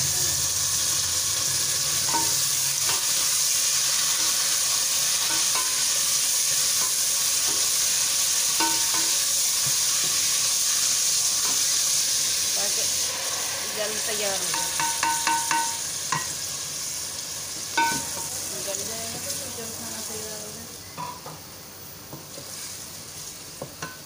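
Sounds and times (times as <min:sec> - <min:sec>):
oil sizzling in a pot: 0:00.0 - 0:24.0
spoon ticking against pot: 0:14.5 - 0:16.2.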